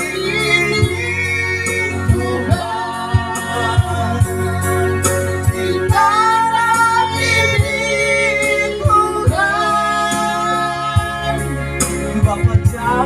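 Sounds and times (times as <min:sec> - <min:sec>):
instrumental accompaniment with beat: 0:00.0 - 0:13.0
person singing worship song: 0:00.0 - 0:13.0.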